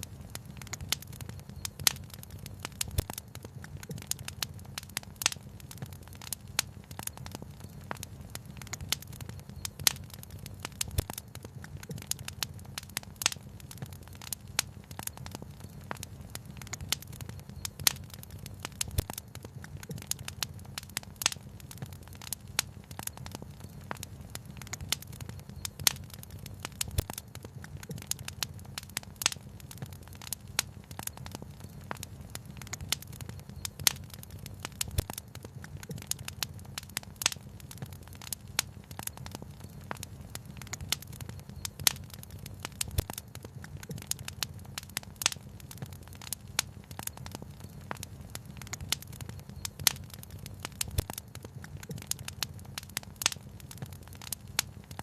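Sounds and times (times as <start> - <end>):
low fire rumble: 0.0 - 55.0
wood fire crackling and popping: 0.0 - 55.0.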